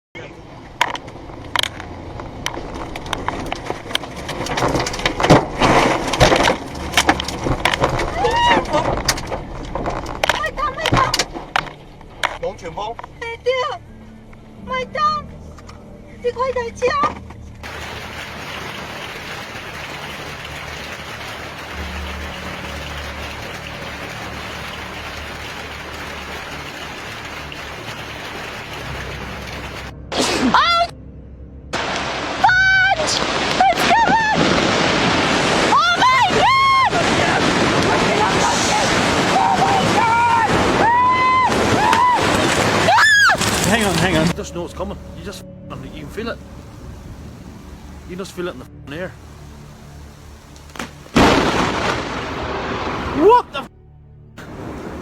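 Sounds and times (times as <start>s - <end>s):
sharp cracks and knocks: 0.8s - 12.4s, 50.5s - 52.1s
rushing noise: 17.6s - 30.1s, 31.7s - 44.4s
heavy rain hissing: 17.6s - 30.4s, 31.8s - 53.7s, 54.4s - 55.0s.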